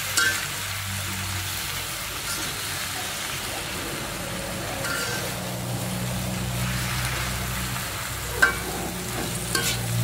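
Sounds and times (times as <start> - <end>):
vegetables sizzling in hot oil: 0.0 - 10.0
metal spatula clacking on pan: 0.1 - 0.5, 4.8 - 5.3, 8.3 - 9.9.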